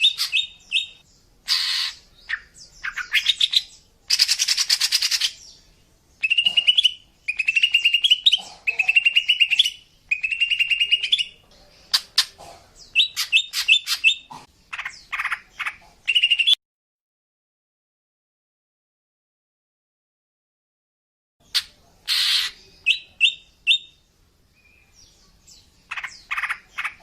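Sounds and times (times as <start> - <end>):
harsh buzzy bird call: 0.0 - 3.3, 21.5 - 23.8
bird trilling calls: 0.0 - 5.6, 6.2 - 16.6, 21.4 - 24.0, 25.9 - 27.0.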